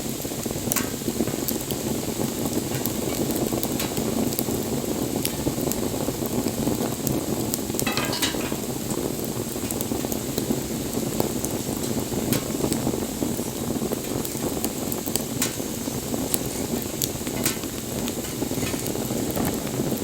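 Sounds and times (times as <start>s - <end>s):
fire crackling and popping: 0.0s - 20.0s
hiss of campfire flames: 0.0s - 20.0s.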